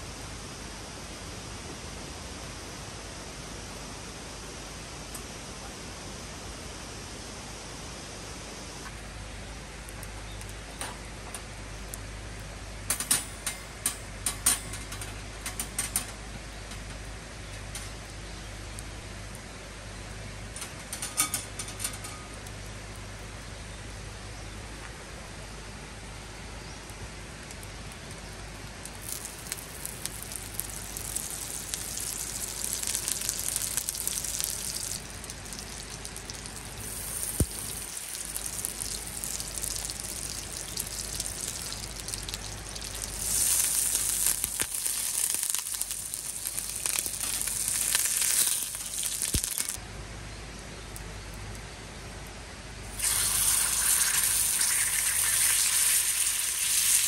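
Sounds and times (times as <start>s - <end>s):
food sizzling in a hot pan: 29.0s - 49.8s, 52.9s - 57.0s.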